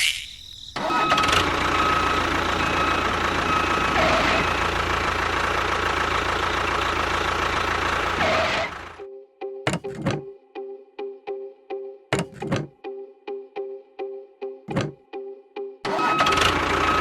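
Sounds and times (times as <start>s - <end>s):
engine running with high whine: 0.8s - 9.0s, 15.9s - 17.0s.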